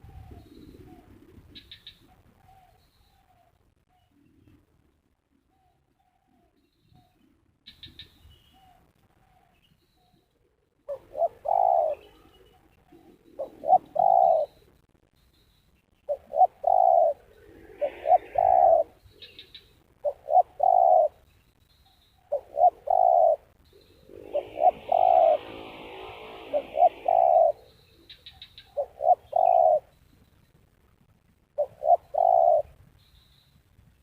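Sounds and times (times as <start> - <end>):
doves cooing: 0.0 - 3.5, 10.9 - 14.6, 16.1 - 21.2, 22.3 - 29.9, 31.6 - 32.8.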